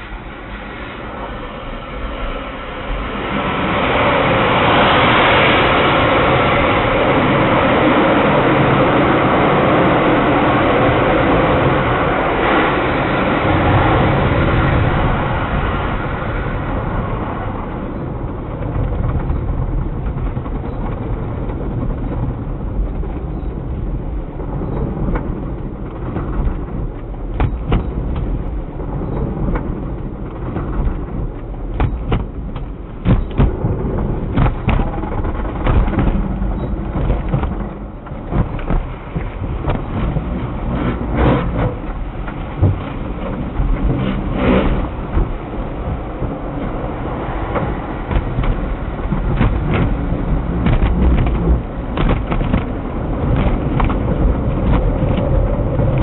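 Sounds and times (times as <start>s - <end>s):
car wash equipment rushing: 0.0s - 56.0s
low rumble: 0.0s - 56.0s
sharp knocks: 26.1s - 28.4s, 30.4s - 42.0s, 47.5s - 55.3s.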